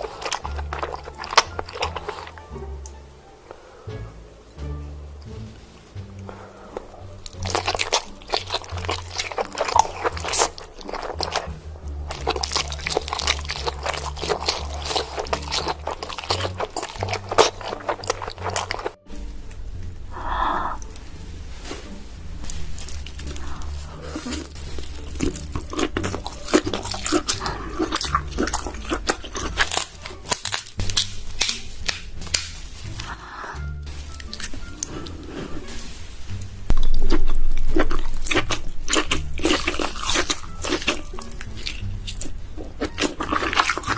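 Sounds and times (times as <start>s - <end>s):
crab shell cracking: 0.0s - 3.0s, 6.8s - 19.0s, 22.5s - 33.1s, 36.7s - 43.9s
wet chewing: 0.0s - 3.6s, 5.9s - 21.1s, 21.9s - 43.9s
background music with bass: 0.0s - 43.9s.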